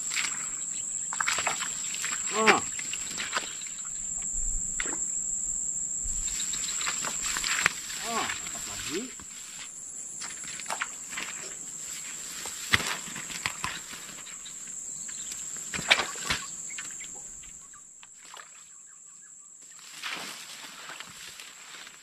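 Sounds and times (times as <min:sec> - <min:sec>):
high-pitched insect drone: 0:00.0 - 0:11.6
rustling through tall grass: 0:06.1 - 0:17.5, 0:19.6 - 0:22.0.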